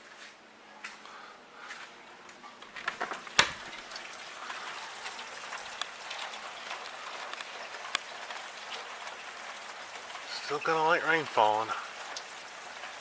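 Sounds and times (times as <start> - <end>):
rain pattering on metal pipe: 2.6 - 13.0.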